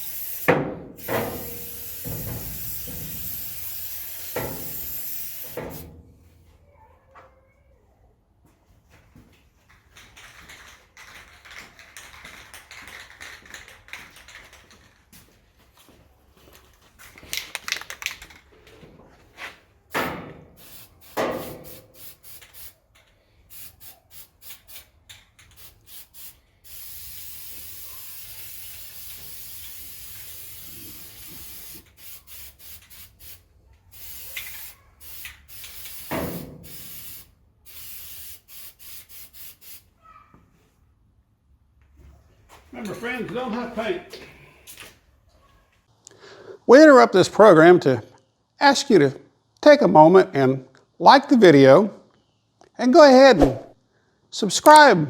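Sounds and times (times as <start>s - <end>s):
aerosol can spraying: 0.0s - 5.9s, 20.6s - 22.8s, 23.5s - 39.9s.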